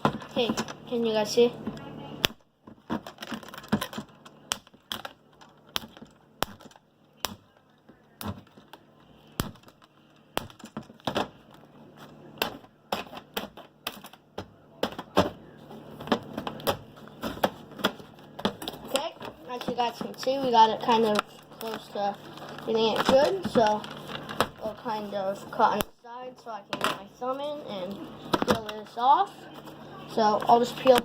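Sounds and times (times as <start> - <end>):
packaging crackling and snapping: 2.9 - 8.8, 17.7 - 24.8.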